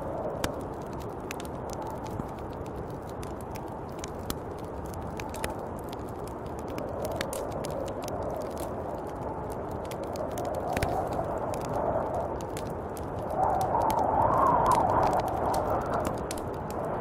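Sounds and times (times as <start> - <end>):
howling snowstorm wind: 0.0 - 17.0
sharp crackles: 0.0 - 17.0.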